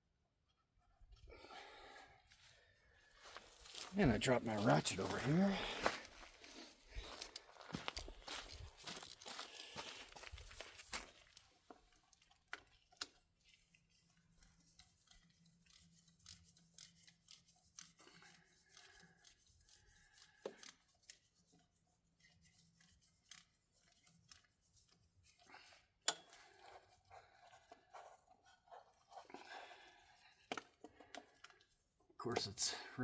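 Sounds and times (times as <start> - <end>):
hand tools clicking and tapping: 26.0 - 26.8.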